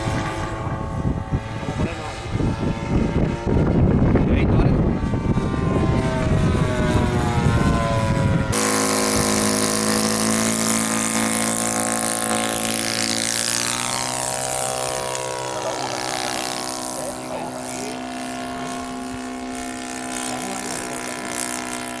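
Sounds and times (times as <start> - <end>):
model airplane engine drone: 0.0 - 22.0
wind buffeting microphone: 0.0 - 22.0.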